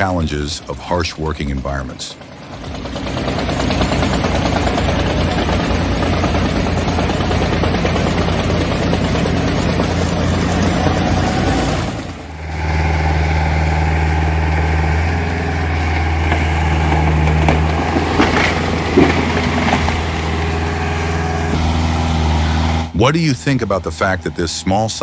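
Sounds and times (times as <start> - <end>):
diesel engine humming: 0.0 - 25.0.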